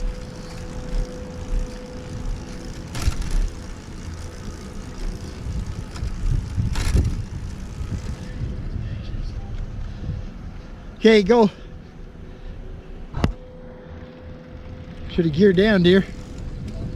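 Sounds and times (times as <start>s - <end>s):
faint steady hum: 0.0s - 16.9s
road rumble: 0.0s - 16.9s
wind on microphone: 4.8s - 10.6s.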